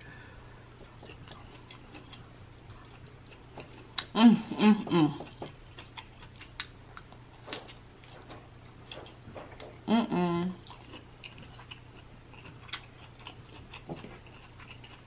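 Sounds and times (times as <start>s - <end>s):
close chewing of broccoli: 0.8s - 9.9s, 10.6s - 15.0s
person humming: 4.2s - 5.3s, 9.9s - 10.6s.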